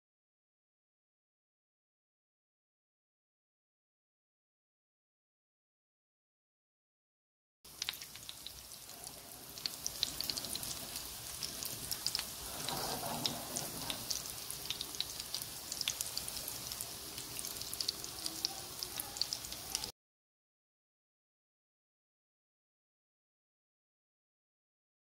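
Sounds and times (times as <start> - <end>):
meat frying in oil: 7.7 - 19.9.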